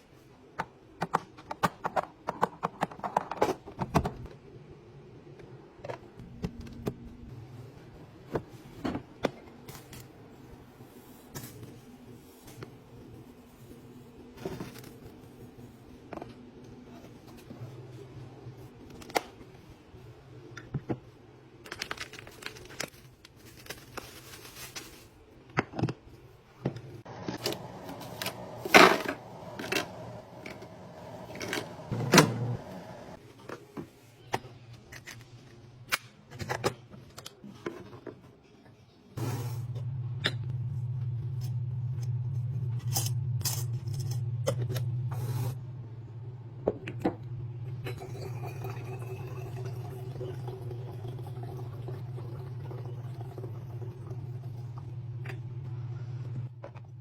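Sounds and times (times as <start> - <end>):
containers and packaging handled: 20.7 - 31.9.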